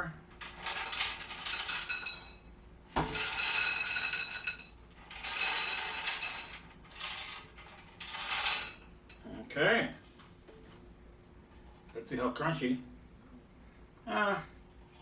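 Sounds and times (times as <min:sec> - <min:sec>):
chickpeas rattling in metal basket: 0:00.3 - 0:02.4, 0:03.0 - 0:08.9.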